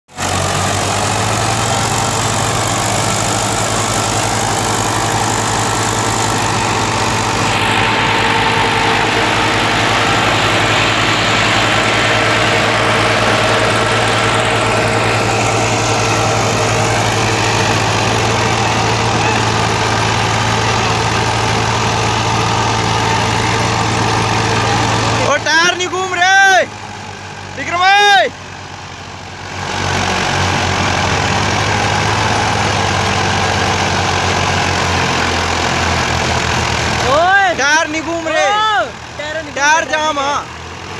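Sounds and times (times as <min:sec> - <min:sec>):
tractor diesel engine running: 0:00.1 - 0:40.9
broad rushing noise: 0:00.2 - 0:25.5.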